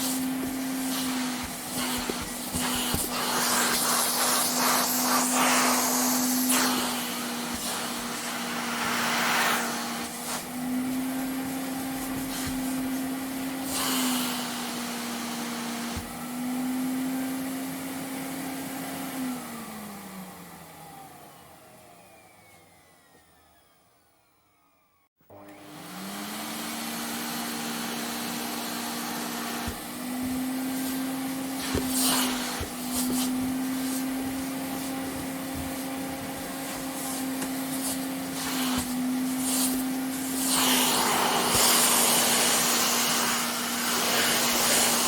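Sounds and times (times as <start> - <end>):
suction hiss: 0.0 - 10.5
vacuum cleaner running: 0.0 - 45.0.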